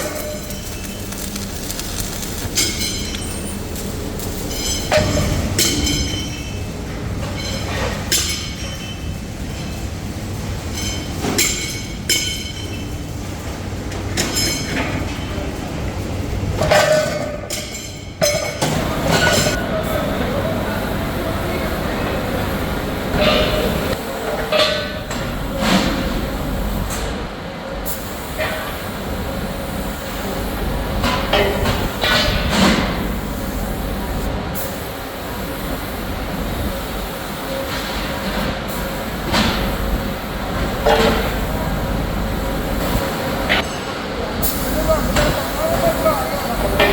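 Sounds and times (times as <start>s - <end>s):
metal parts clanking: 0.0s - 6.5s
factory machinery humming: 0.0s - 46.9s.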